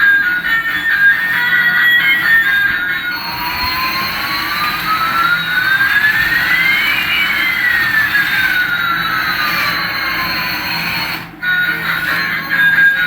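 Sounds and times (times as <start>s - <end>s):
jet engine whine and hiss: 2.6s - 12.3s.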